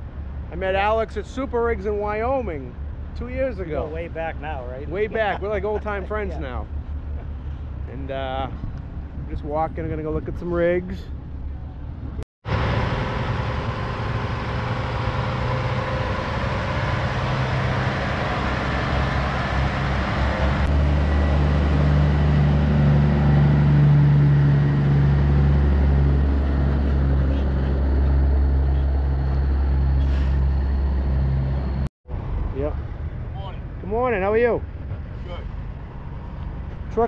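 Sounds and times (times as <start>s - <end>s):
diesel truck engine idling: 12.5s - 31.9s.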